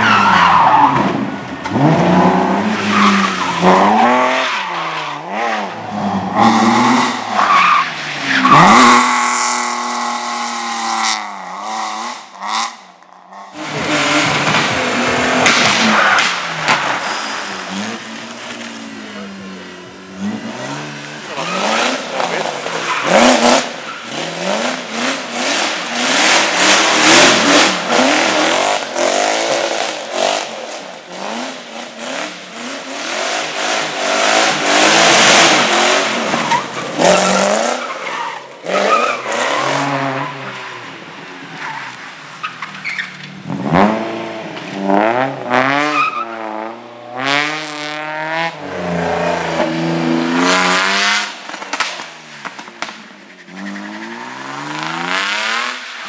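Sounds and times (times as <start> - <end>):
tyres squealing and skidding: 0.0 - 11.0, 13.6 - 43.4, 45.7 - 46.5, 53.2 - 56.0
car engine revving: 0.0 - 56.0.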